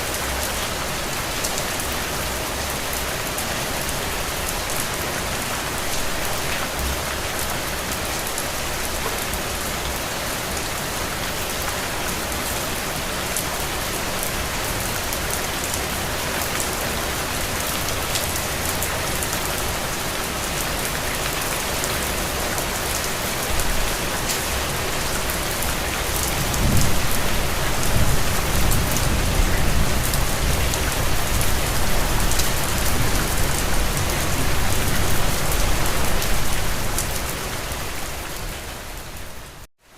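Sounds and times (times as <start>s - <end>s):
rain falling on a surface: 0.0s - 39.9s
low rumble of thunder: 26.4s - 35.2s.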